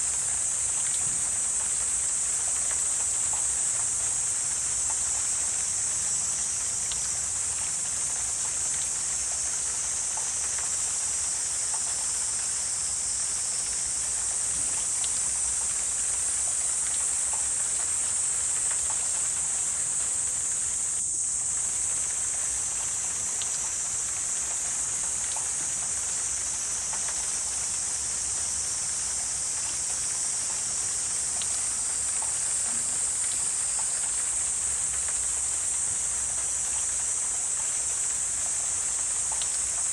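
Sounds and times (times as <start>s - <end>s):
high-pitched insect chorus: 0.0s - 39.9s
faint ticks: 0.7s - 5.4s, 6.6s - 12.4s, 13.6s - 39.9s.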